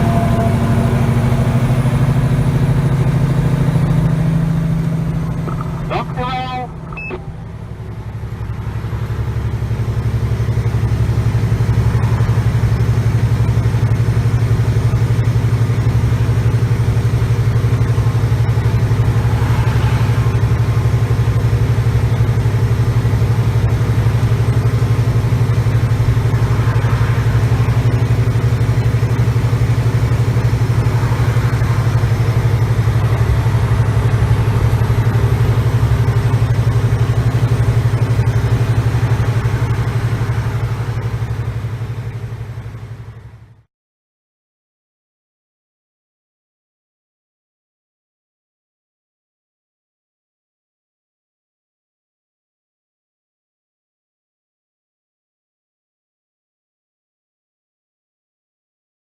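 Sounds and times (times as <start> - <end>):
diesel truck engine droning: 0.0 - 43.6.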